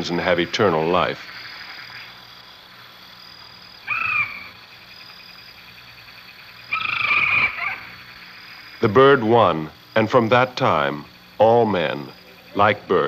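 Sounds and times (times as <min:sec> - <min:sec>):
night insects humming: 0:00.0 - 0:13.0
short pitched animal calls: 0:03.8 - 0:04.6, 0:06.7 - 0:08.0
rasping animal call: 0:06.7 - 0:08.0.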